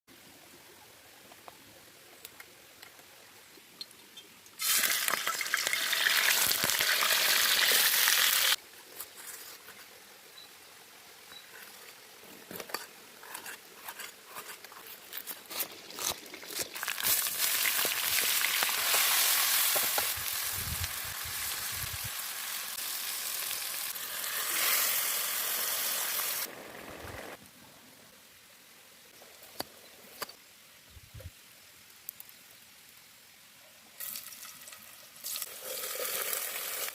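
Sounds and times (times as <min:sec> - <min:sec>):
food sizzling in hot oil: 0:04.6 - 0:08.6, 0:15.8 - 0:26.6, 0:34.0 - 0:36.9.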